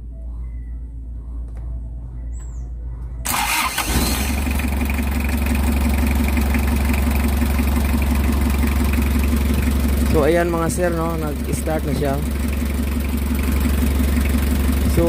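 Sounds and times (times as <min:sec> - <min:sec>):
diesel engine idling: 0:03.2 - 0:15.0
starter motor cranking: 0:03.3 - 0:05.2.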